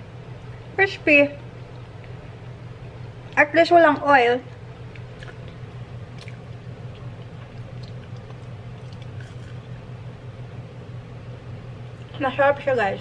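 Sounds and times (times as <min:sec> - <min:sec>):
steady low hum: 0:00.0 - 0:13.0
chewing crispy fries: 0:02.9 - 0:09.9.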